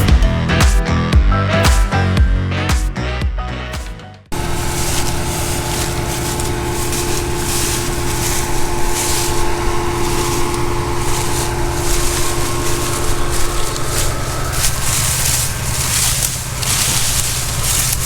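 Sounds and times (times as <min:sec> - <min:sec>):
combine harvester drone: 0:04.3 - 0:18.0
steady machine whine: 0:04.3 - 0:18.0.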